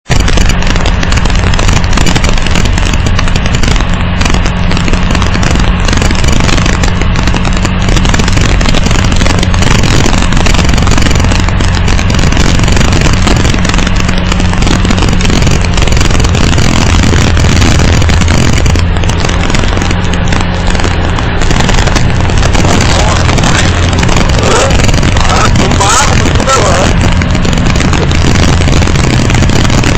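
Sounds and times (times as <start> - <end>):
vehicle driving on rough stone road: 0.0 - 29.9
constant low hum: 0.1 - 29.9.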